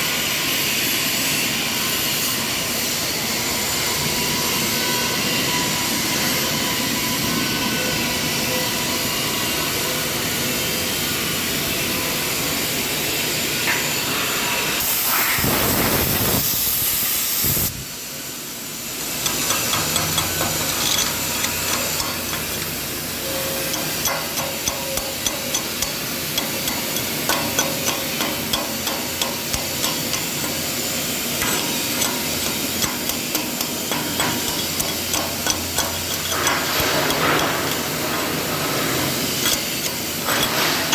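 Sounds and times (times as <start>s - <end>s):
welding arc crackling: 18.8s - 40.9s.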